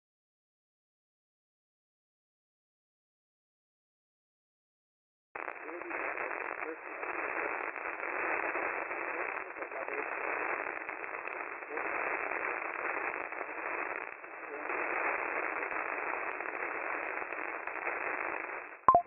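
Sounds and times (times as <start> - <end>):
radio static hiss and crackle: 5.4 - 18.9.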